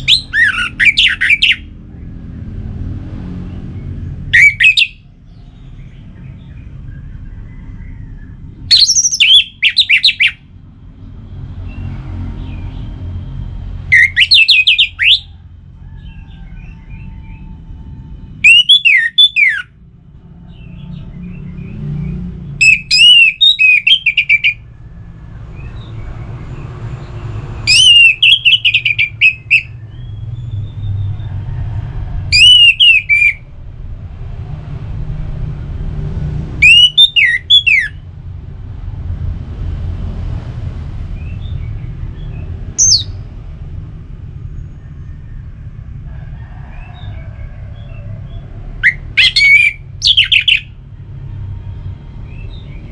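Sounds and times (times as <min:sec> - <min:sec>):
thrush singing whistled phrases: 0:00.0 - 0:01.7, 0:04.3 - 0:05.0, 0:08.7 - 0:10.4, 0:13.9 - 0:15.3, 0:18.4 - 0:19.8, 0:22.6 - 0:24.6, 0:27.6 - 0:30.2, 0:32.3 - 0:33.5, 0:36.6 - 0:38.0, 0:42.8 - 0:43.2, 0:48.8 - 0:50.8.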